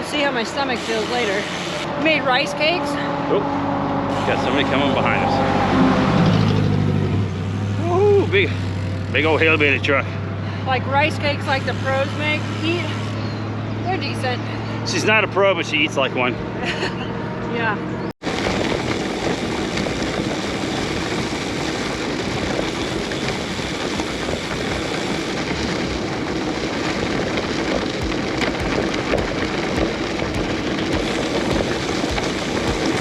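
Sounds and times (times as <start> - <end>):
bicycle tyres on gravel: 0.0 - 1.9, 18.2 - 33.0
wind on microphone: 18.2 - 33.0.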